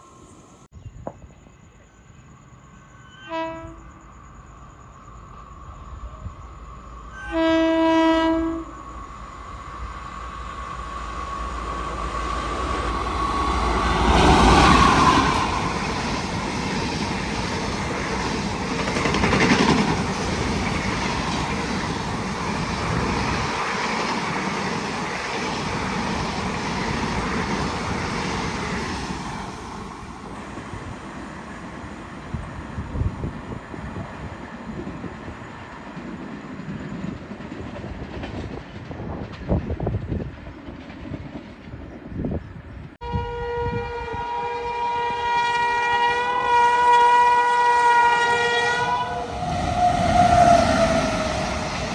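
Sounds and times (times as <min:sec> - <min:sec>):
passenger train rumbling past: 0:00.0 - 0:00.7, 0:02.2 - 0:51.9
locomotive horn blast: 0:03.2 - 0:04.0, 0:07.2 - 0:08.8, 0:43.0 - 0:51.9.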